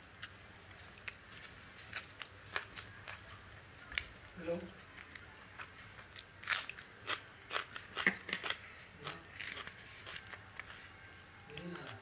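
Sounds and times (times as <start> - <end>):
person chewing food: 0.0 - 3.4, 4.9 - 12.0.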